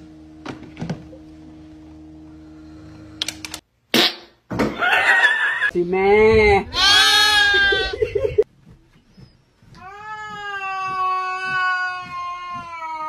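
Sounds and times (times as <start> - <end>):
loud bleat: 6.7 - 8.0
cat yowling: 9.8 - 13.0.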